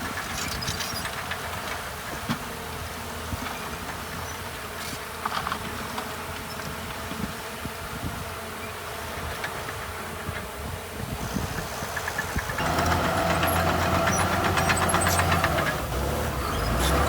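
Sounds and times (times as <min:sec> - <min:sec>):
diesel engine droning: 0:11.2 - 0:17.0.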